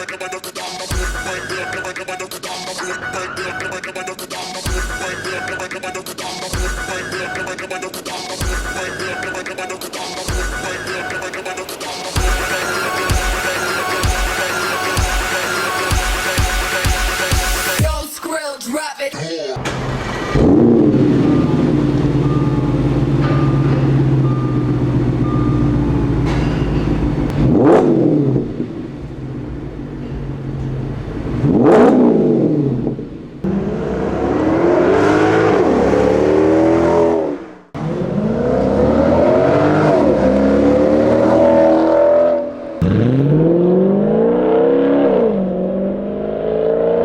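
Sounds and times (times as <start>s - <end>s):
car engine revving and accelerating: 19.6s - 47.0s.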